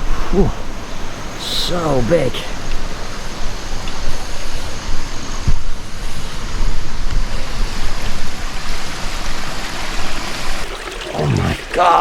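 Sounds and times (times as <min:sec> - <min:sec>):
stream rushing over rocks: 0:00.0 - 0:12.0
wind buffeting microphone: 0:02.5 - 0:10.6.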